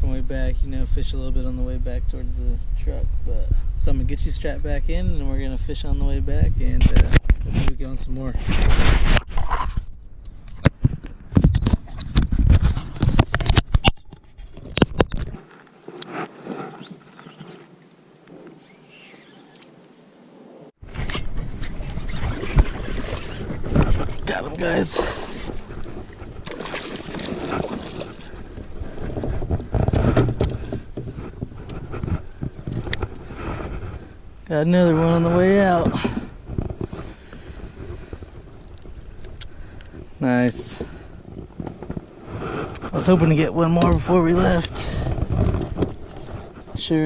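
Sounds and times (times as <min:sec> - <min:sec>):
water splashing: 0:21.4 - 0:30.9.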